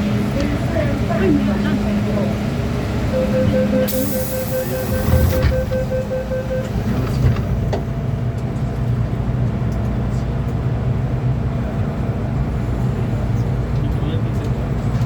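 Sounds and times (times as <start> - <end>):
train rumble and hum: 0.0 - 15.0
rapid warning beeps: 3.0 - 7.3.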